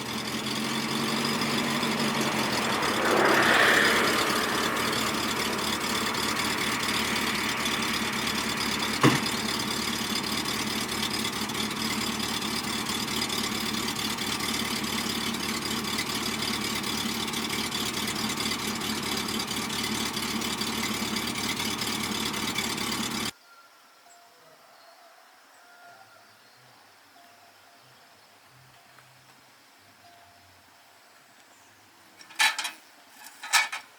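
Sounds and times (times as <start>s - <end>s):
truck engine idling: 0.0s - 23.3s.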